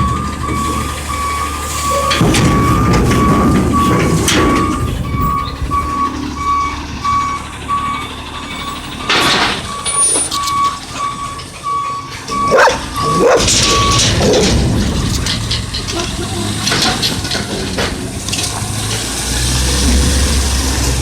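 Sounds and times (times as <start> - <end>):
backup alarm beeping: 0.0 - 15.8
low diesel engine: 0.0 - 21.0
dog barking: 12.5 - 13.6.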